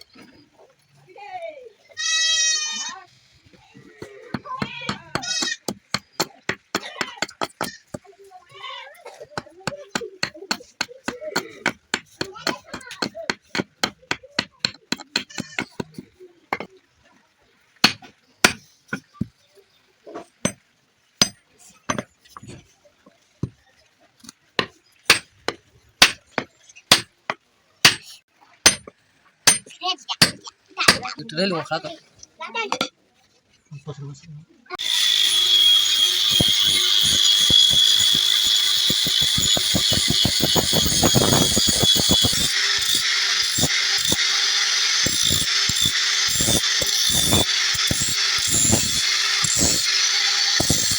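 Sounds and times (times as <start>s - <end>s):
hammer striking iron: 24.6s - 26.2s, 26.9s - 28.1s, 28.7s - 31.0s, 34.8s - 50.9s
high-pitched machine whine: 34.8s - 50.9s.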